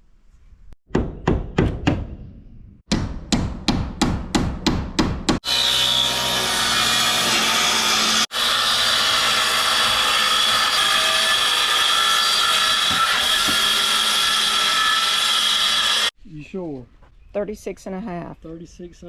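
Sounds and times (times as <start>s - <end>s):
power saw cutting wood: 5.4s - 16.1s.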